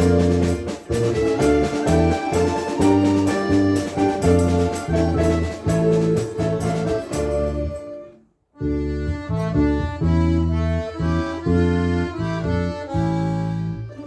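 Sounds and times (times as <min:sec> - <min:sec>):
folk instrument orchestra playing: 0:00.0 - 0:08.2.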